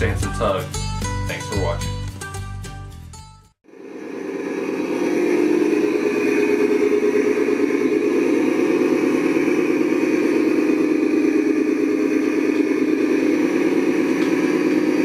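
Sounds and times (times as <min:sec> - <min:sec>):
motor running steadily: 0:03.6 - 0:15.0.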